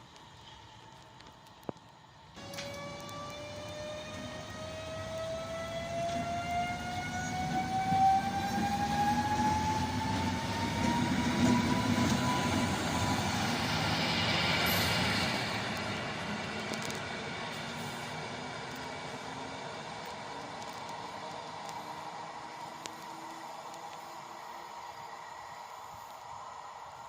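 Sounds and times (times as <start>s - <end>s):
train wheels rumbling on rails: 0.0s - 27.0s
electric motor whine rising: 2.4s - 14.0s.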